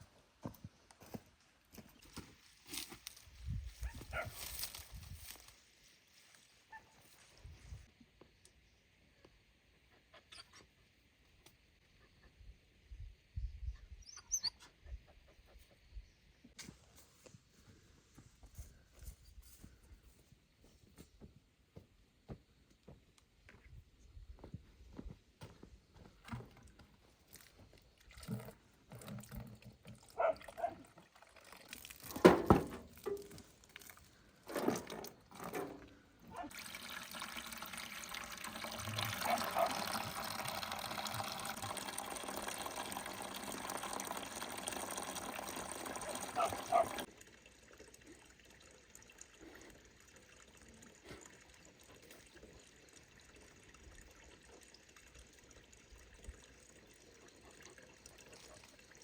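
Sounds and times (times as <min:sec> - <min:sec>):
water pouring: 0:27.3 - 0:59.0.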